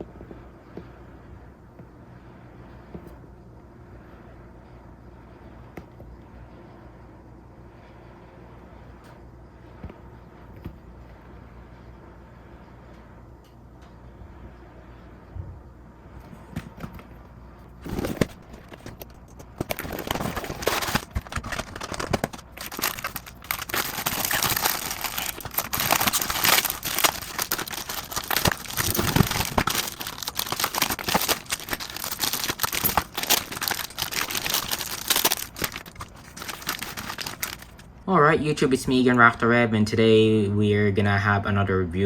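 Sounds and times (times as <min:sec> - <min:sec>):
packaging crinkling: 0:17.8 - 0:38.0.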